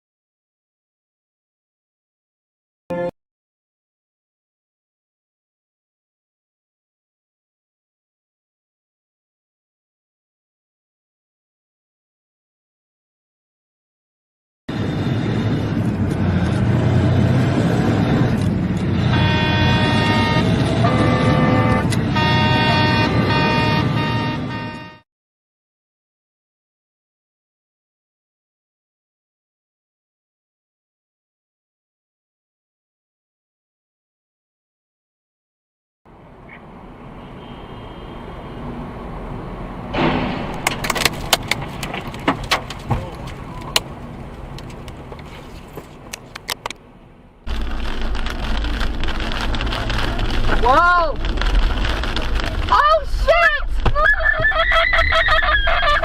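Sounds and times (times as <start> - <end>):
vehicle horns sounding: 2.9 - 3.1, 19.0 - 25.0, 37.1 - 38.8
traffic road and engine noise: 14.7 - 25.0, 36.1 - 56.0
loud sudden impact: 39.9 - 41.5.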